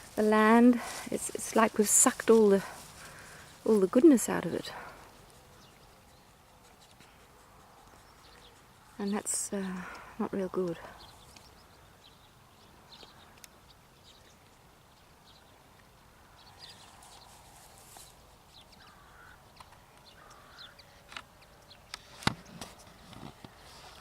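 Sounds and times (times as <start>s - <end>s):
rustling: 0.0s - 9.0s, 16.7s - 18.4s, 22.0s - 24.0s
faint bird calls: 18.7s - 21.2s.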